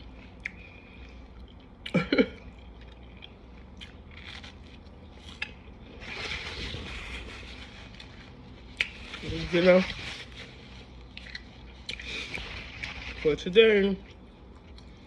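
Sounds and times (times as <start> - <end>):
chewing: 0.1 - 5.8, 7.5 - 9.2, 10.3 - 13.2, 14.0 - 15.0
soft rustling: 6.0 - 14.0.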